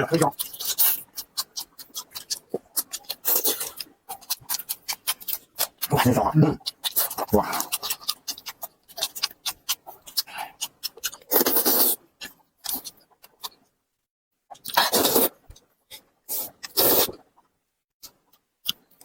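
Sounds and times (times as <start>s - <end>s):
wet chewing and smacking: 0.3s - 13.8s, 14.5s - 19.0s.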